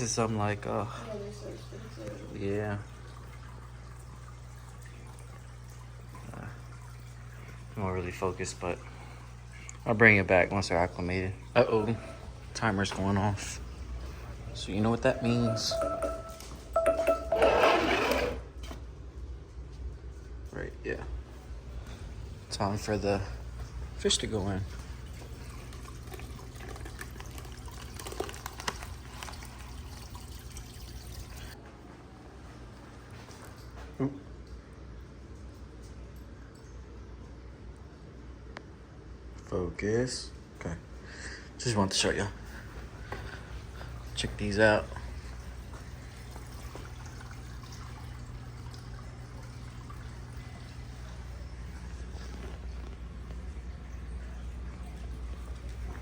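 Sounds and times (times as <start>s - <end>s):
low steady hum: 0.0s - 56.0s
water trickling and splashing: 1.0s - 17.4s, 21.9s - 31.6s, 42.5s - 56.0s.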